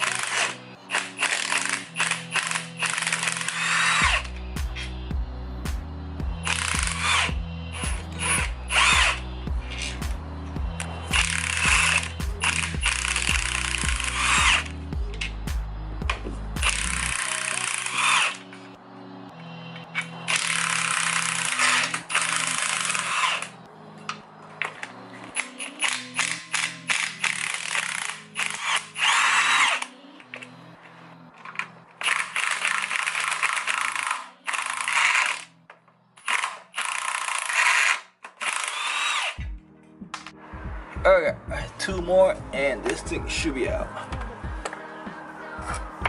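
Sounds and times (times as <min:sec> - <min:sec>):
power ratchet running: 0:00.0 - 0:04.9, 0:06.4 - 0:10.1, 0:10.7 - 0:15.4, 0:16.6 - 0:18.5, 0:20.3 - 0:23.6, 0:25.4 - 0:29.9, 0:32.0 - 0:35.5, 0:36.2 - 0:39.4
ratcheting clicks: 0:00.0 - 0:04.9, 0:06.4 - 0:10.0, 0:11.1 - 0:15.4, 0:16.1 - 0:18.5, 0:20.0 - 0:23.5, 0:24.6 - 0:30.5, 0:31.4 - 0:35.5, 0:36.2 - 0:39.4
background music: 0:00.0 - 0:46.0.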